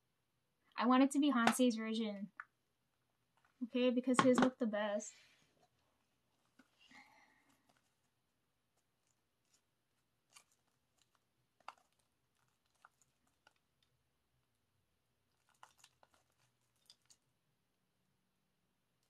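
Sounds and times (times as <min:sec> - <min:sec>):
plastic wrap rustling: 0:05.6 - 0:13.9, 0:15.2 - 0:17.3
cd packaging crinkling: 0:08.8 - 0:13.9, 0:15.3 - 0:17.3.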